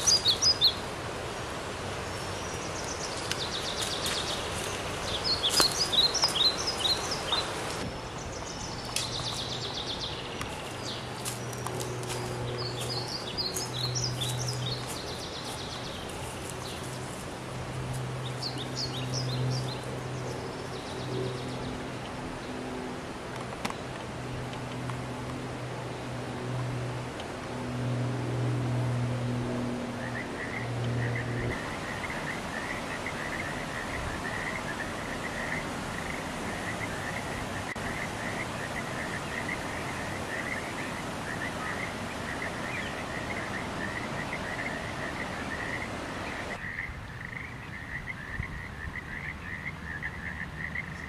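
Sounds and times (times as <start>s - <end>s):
birds chirping and calling: 0.0s - 0.8s, 2.2s - 17.2s
steady background hiss: 0.0s - 51.0s
low steady drone: 24.0s - 39.1s.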